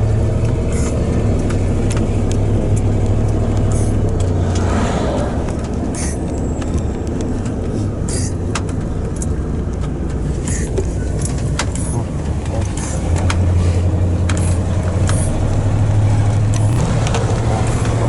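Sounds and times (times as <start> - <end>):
sharp clicks and rattles: 0.0 - 18.0
truck engine rumble: 0.0 - 18.0.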